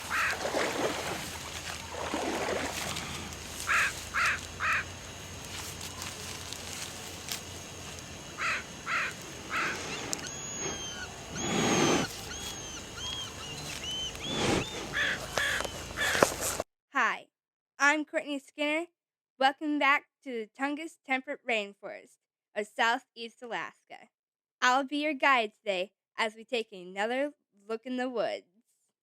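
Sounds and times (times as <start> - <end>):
birds calling: 0.0 - 16.6
thin high chirps: 3.4 - 16.1.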